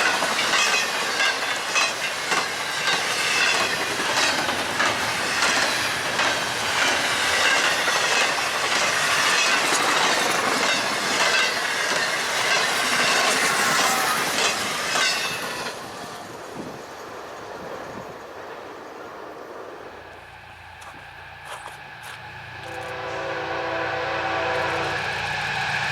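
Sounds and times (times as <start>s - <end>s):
wheels clacking over rail joints: 0.0s - 19.4s
freight train passing: 0.0s - 25.9s.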